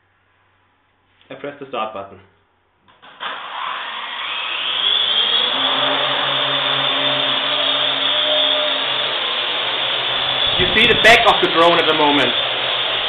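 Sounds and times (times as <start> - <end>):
drone motors whirring: 3.2 - 13.0.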